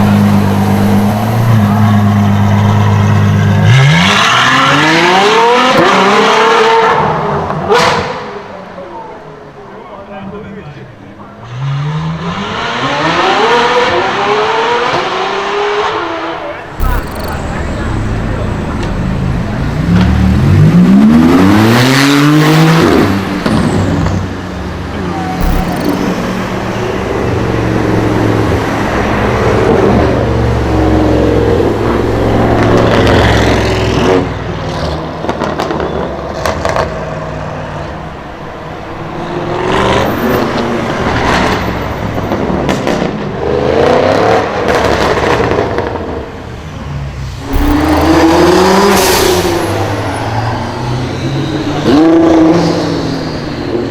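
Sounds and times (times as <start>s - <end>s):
supercar engines revving: 11.4s - 53.9s
exhaust pops and bangs: 25.4s - 26.8s, 47.5s - 49.3s.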